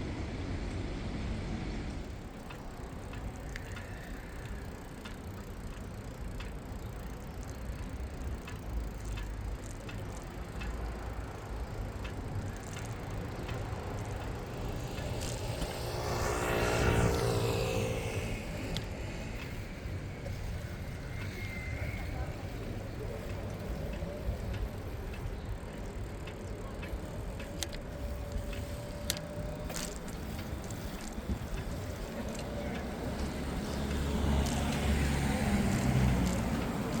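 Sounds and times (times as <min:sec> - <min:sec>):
bicycle tyres rumbling: 0:00.0 - 0:37.0
passing vehicle: 0:00.0 - 0:37.0
wind: 0:00.0 - 0:37.0
light clicks: 0:23.0 - 0:37.0.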